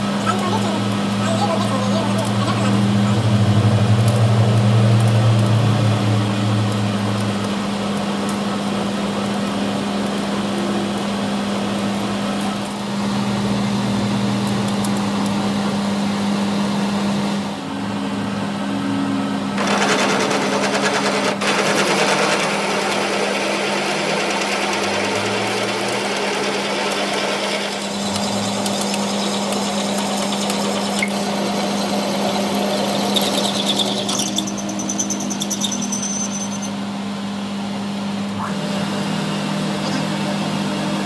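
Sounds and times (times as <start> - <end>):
metalworking machinery humming: 0.0 - 41.0
rapid rattling mechanical noise: 0.0 - 41.0
high-pitched squeal: 32.4 - 36.9.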